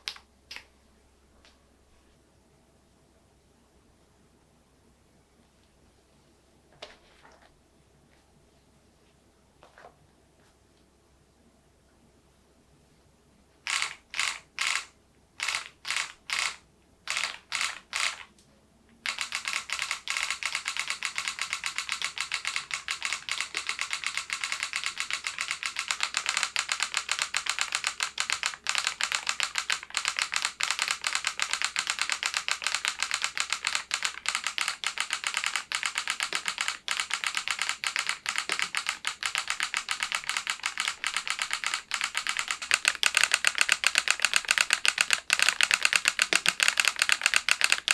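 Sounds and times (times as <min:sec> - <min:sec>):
mechanical keyboard typing: 0:13.7 - 0:18.3, 0:19.0 - 0:47.9.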